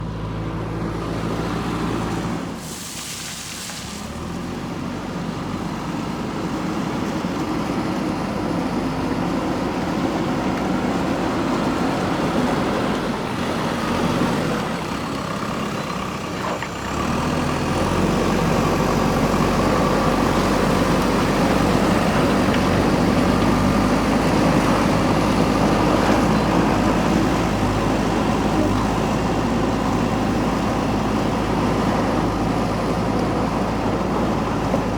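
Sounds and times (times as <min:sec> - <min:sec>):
diesel engine running: 0:00.0 - 0:02.8, 0:04.1 - 0:34.9
brief hiss: 0:02.6 - 0:04.1.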